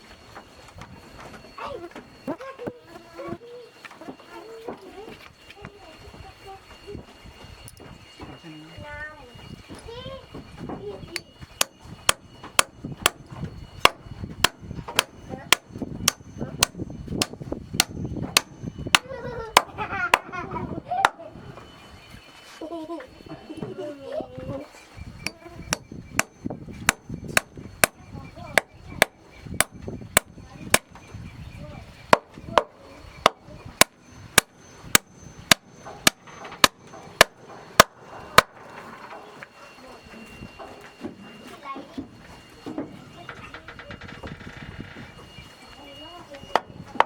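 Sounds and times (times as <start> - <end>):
tool striking wood: 11.2 - 20.3, 25.2 - 31.2, 32.1 - 38.8
hammer driving nails into wood: 11.6 - 19.1, 25.2 - 28.0, 28.6 - 31.0, 33.3 - 38.5.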